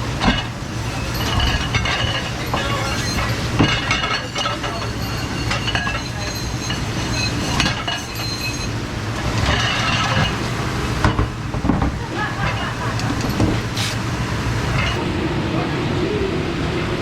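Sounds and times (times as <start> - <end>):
dishes and cutlery clinking: 0.2 - 14.0, 14.6 - 15.0.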